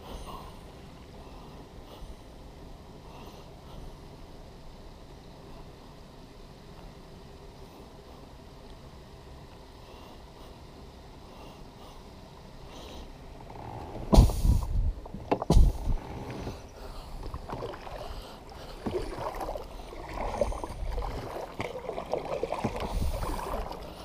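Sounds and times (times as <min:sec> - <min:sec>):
water noise: 0:13.1 - 0:24.0
loud knocks on kayak: 0:14.1 - 0:14.6, 0:15.3 - 0:15.9.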